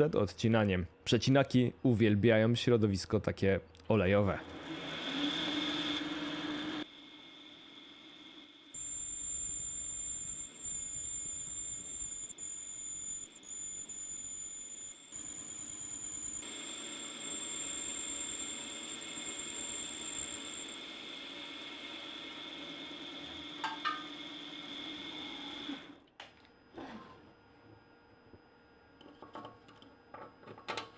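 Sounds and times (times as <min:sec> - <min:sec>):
lathe spindle whine: 0:04.4 - 0:26.0.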